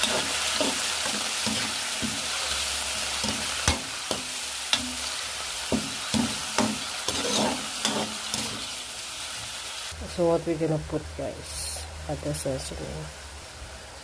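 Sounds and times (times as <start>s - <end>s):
chicken sizzling in oil: 0.0s - 10.3s.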